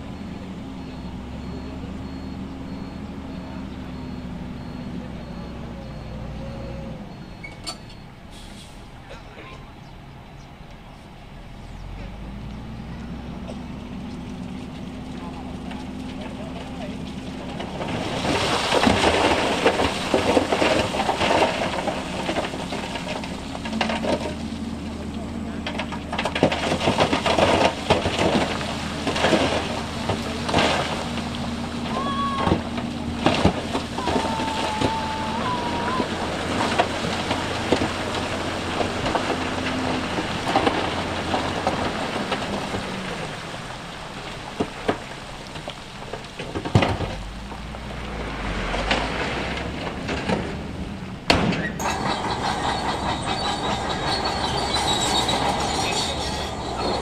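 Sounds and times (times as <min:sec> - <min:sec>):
diesel engine running: 0:00.0 - 0:57.0
metallic squeals of crawler tracks: 0:00.1 - 0:08.9, 0:26.6 - 0:41.7, 0:51.6 - 0:57.0
stones clattering and knocking: 0:17.5 - 0:24.6.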